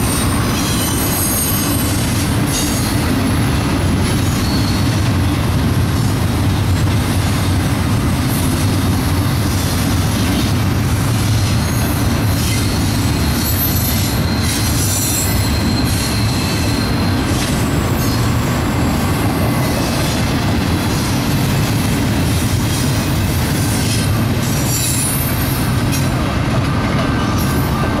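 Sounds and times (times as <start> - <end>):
high wheel squeal: 0.0 - 3.1, 4.0 - 5.1, 11.3 - 20.3, 22.8 - 25.8
steel wheels rumbling on rail: 0.0 - 28.0.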